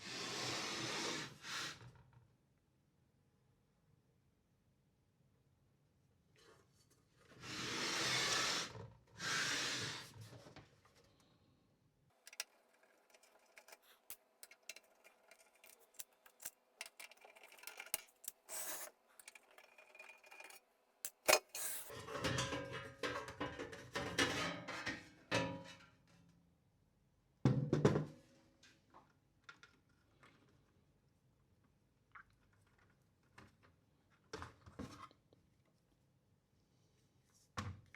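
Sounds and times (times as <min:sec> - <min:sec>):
parts and tools clicking: 0:12.2 - 0:21.9
metal parts scraping slides: 0:12.3 - 0:21.9.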